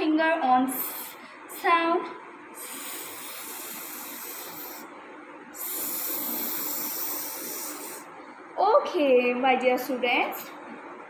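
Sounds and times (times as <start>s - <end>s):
woman hissing s sound: 2.6s - 4.9s, 5.6s - 8.1s.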